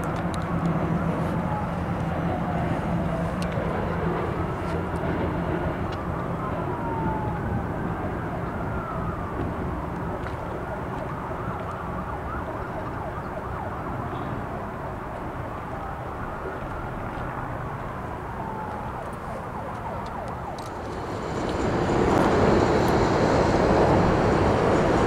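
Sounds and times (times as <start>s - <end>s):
train low rumble: 15.0s - 25.0s.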